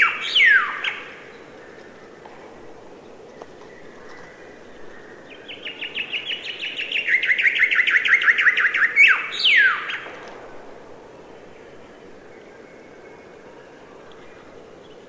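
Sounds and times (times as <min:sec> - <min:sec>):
bird chirping song: 0:00.0 - 0:01.8, 0:03.0 - 0:10.2.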